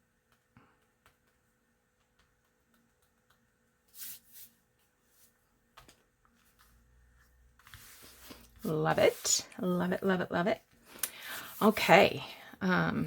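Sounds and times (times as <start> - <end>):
paper rustling: 3.8 - 9.4.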